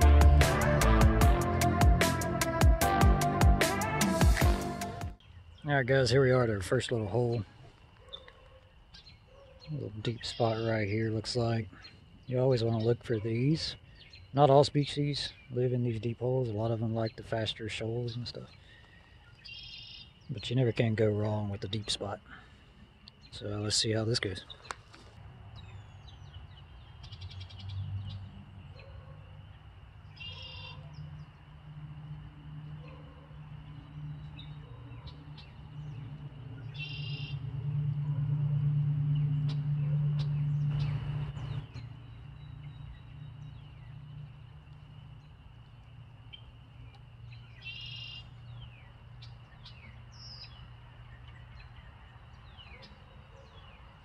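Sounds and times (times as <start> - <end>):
bird chirping: 5.1 - 54.0
low steady rumble: 35.4 - 47.6.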